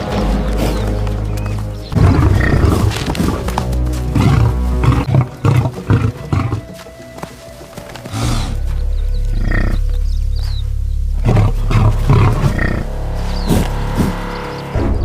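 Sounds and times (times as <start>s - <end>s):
low drone: 0.0s - 15.0s
music: 0.0s - 15.0s
big cat roaring: 1.9s - 6.7s, 11.1s - 14.5s.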